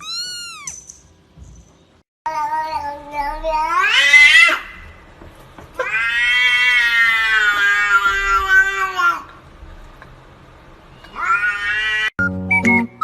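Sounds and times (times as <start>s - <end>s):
cat yowling meows: 0.0s - 0.8s, 5.8s - 9.2s, 11.1s - 12.1s.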